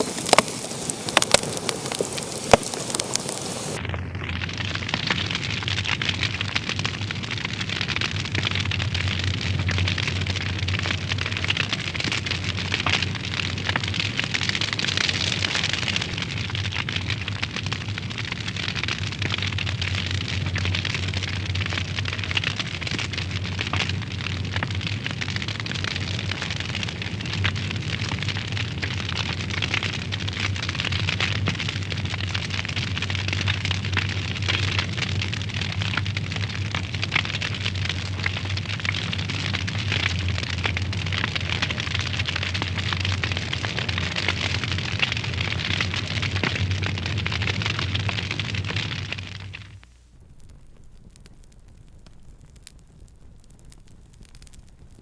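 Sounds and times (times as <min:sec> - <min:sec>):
wood fire crackling and popping: 0:00.0 - 0:55.0
low steady rumble: 0:31.4 - 0:55.0.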